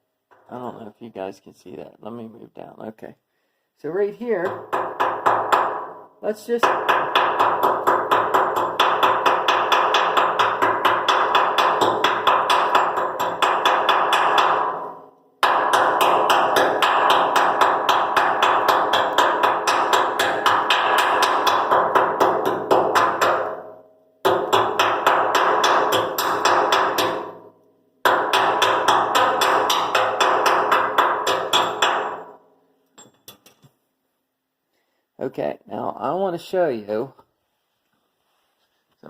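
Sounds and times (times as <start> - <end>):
chipping strikes on metal: 6.7 - 27.4, 28.0 - 32.4.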